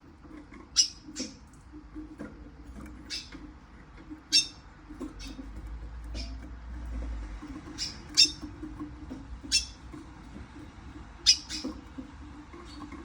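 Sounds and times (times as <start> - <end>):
bird chirping: 0.6 - 1.6, 2.9 - 6.5, 7.4 - 10.1, 11.2 - 13.0.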